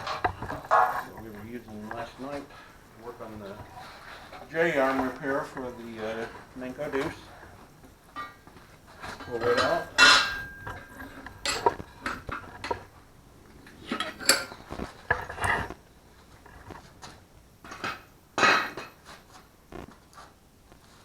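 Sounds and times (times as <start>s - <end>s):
steel parts and tools clanking: 0.0s - 13.0s, 13.6s - 15.7s, 17.6s - 19.0s.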